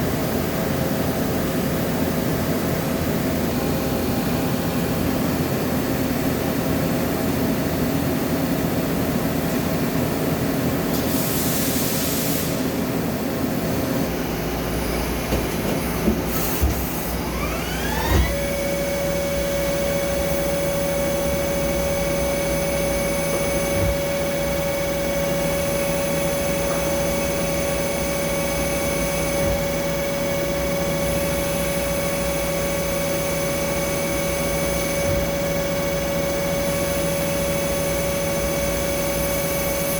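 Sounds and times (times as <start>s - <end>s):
machine tool motor whine: 14.1s - 39.9s.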